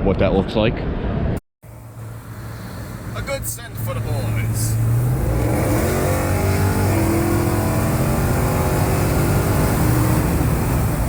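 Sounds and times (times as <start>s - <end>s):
steady low drone: 1.6s - 9.5s
car engine revving: 1.6s - 11.0s.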